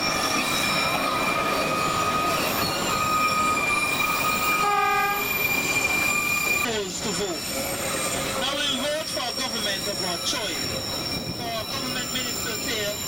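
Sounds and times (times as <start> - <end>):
rumble of train cars: 0.0 - 13.0
train wheels squealing: 0.0 - 13.0
locomotive horn blast: 4.5 - 5.3.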